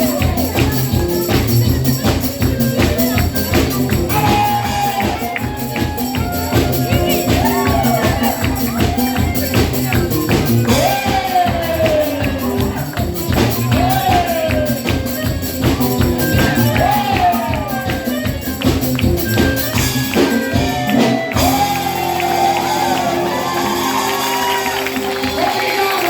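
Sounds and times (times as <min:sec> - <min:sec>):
person singing: 0:00.0 - 0:18.5, 0:20.3 - 0:26.0
dense rhythmic percussion: 0:00.0 - 0:26.0.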